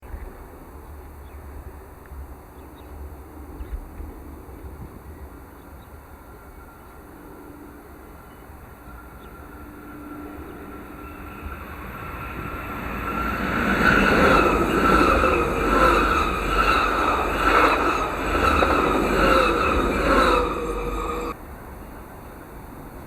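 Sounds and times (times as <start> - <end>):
train rushing past: 4.2 - 21.7
ringing tone from wheels and rails: 8.2 - 21.4.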